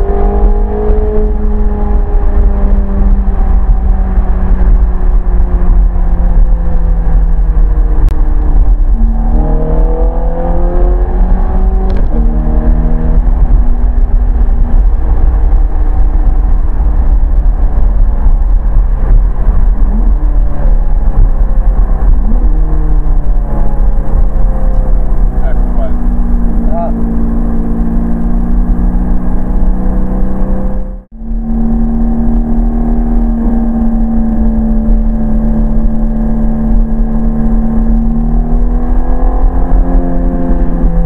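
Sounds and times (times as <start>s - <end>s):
car engine accelerating: 0.0s - 41.0s
low road rumble: 0.0s - 41.0s.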